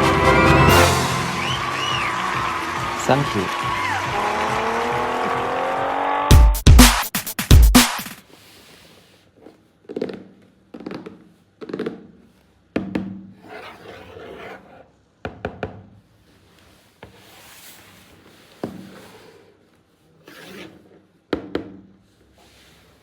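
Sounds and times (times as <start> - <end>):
soft rubbing and scraping: 16.2 - 21.1.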